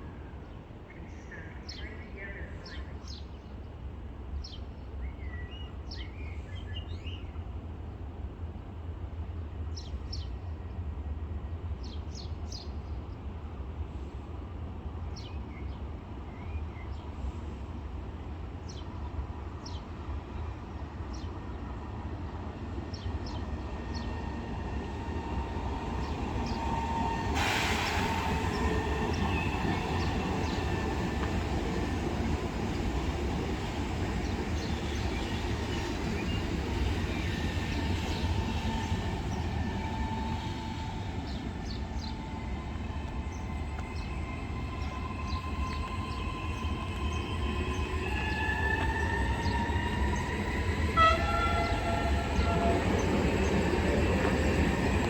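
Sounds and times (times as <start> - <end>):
electric train rumble: 21.9 - 55.0
sudden hiss: 27.4 - 28.6.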